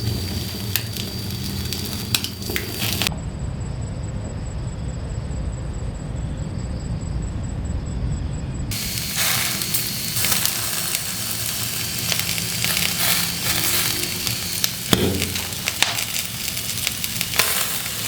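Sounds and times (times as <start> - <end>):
wood fire crackling and popping: 0.0 - 3.1, 8.7 - 18.0.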